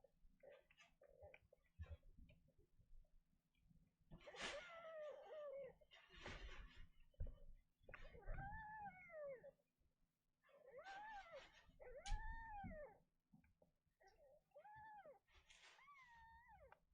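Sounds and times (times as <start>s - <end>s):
kitten meowing: 10.7s - 13.0s.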